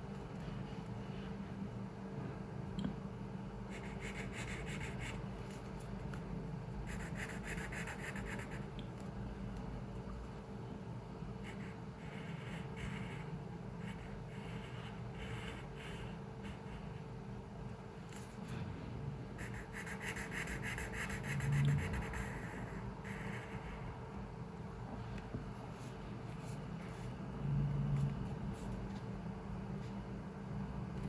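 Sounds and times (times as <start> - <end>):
low room hum: 0.0 - 31.0
pencil scratching on paper: 3.7 - 5.2, 6.9 - 8.6, 11.4 - 17.0, 19.4 - 23.8.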